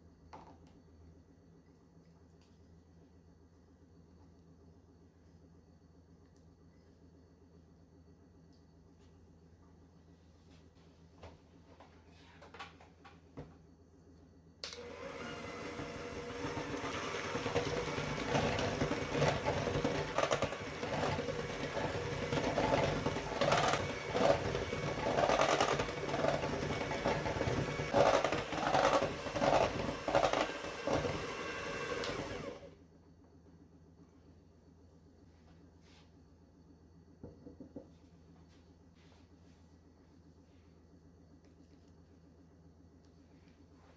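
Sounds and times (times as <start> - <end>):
electric kitchen mixer running: 14.7 - 32.8.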